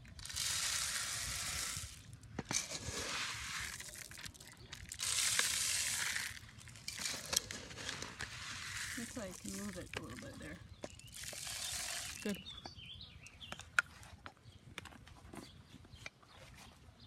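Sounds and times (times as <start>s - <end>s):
rustling and crunching: 0.0s - 12.4s.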